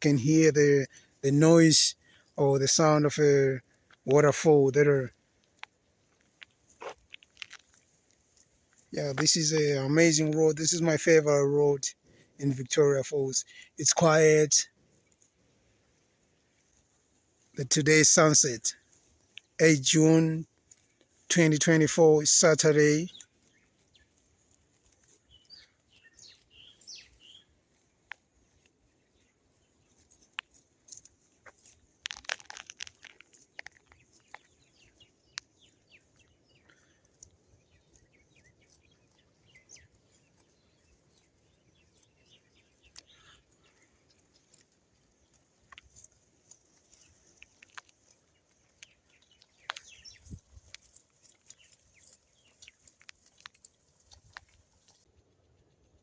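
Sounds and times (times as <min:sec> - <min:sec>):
bird chirps and calls: 0:23.0 - 0:24.2, 0:25.3 - 0:27.5, 0:33.5 - 0:44.5, 0:48.0 - 0:53.0.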